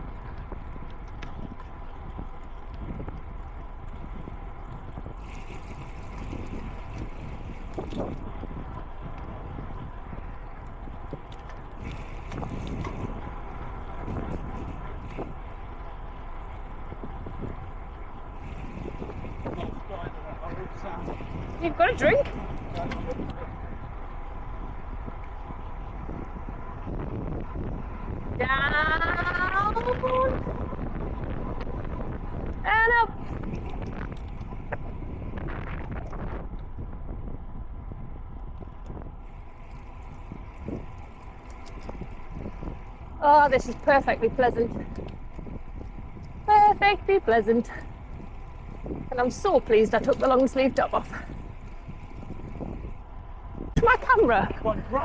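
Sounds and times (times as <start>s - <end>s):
wind blowing across microphone: 0.0s - 55.0s.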